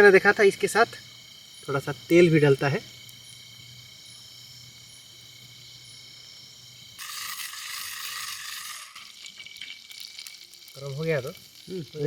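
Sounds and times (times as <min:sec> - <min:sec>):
night insects chirring: 0:00.0 - 0:12.0
oil sizzling in a pan: 0:05.9 - 0:12.0.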